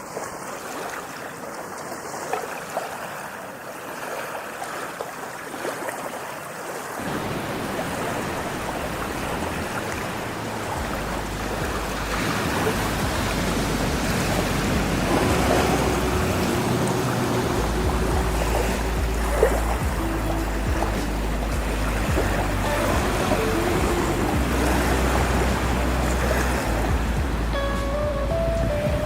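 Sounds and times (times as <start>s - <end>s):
ocean waves washing: 0.0s - 29.0s
deep rumble: 8.6s - 29.0s.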